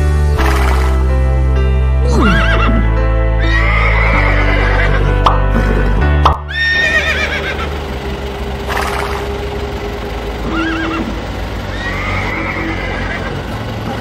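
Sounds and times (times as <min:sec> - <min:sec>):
horse whinnying: 0:02.0 - 0:05.2, 0:06.5 - 0:07.6, 0:10.5 - 0:13.4.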